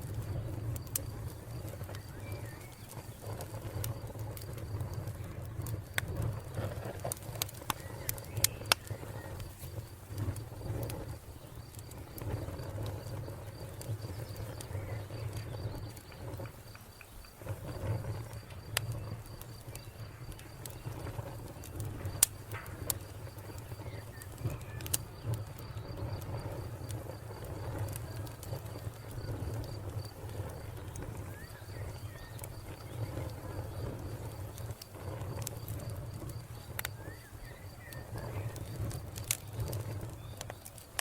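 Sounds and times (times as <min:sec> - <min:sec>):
fire popping: 0:00.0 - 0:41.0
wood fire crackling: 0:00.0 - 0:41.0
cricket chirping: 0:00.2 - 0:40.7.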